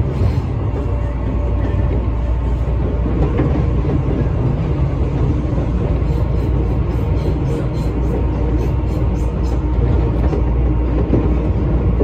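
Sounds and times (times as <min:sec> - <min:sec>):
train wheels and motors rumbling: 0:00.0 - 0:12.0.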